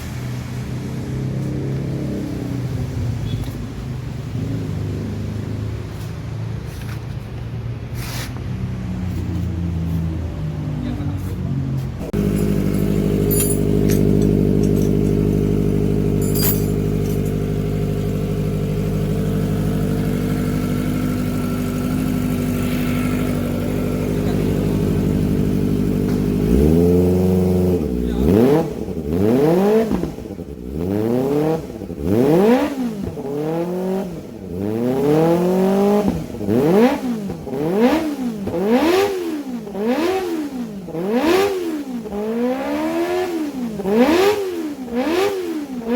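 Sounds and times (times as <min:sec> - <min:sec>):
motorcycle engine revving: 0:00.0 - 0:06.6, 0:08.6 - 0:45.9
motorcycle engine idling: 0:12.0 - 0:29.2.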